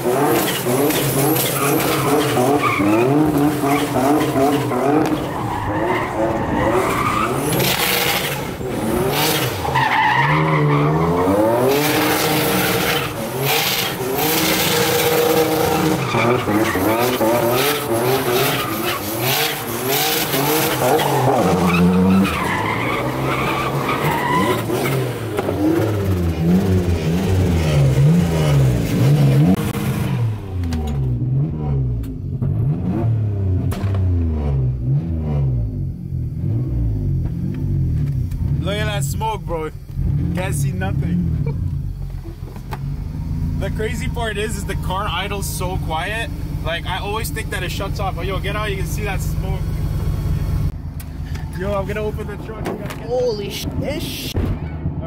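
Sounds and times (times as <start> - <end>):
car engine revving: 0.0 - 55.0
tyres squealing: 0.2 - 25.1.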